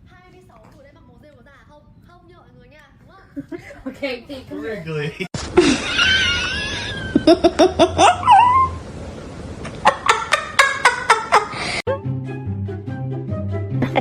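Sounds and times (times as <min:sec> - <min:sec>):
person laughing: 0:04.9 - 0:08.8, 0:09.7 - 0:11.8, 0:13.8 - 0:14.0.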